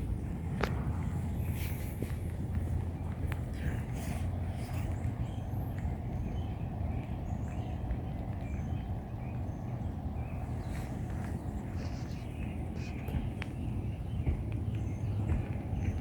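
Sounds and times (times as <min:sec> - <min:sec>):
low outdoor rumble: 0:00.0 - 0:16.0
faint bird chirps: 0:08.5 - 0:14.2.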